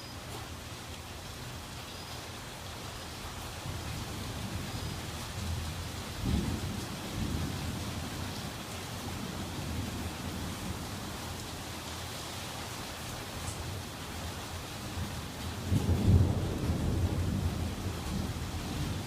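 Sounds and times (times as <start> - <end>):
steady rain: 0.0 - 19.0
low thunder rumbles: 3.6 - 10.9, 15.0 - 19.0.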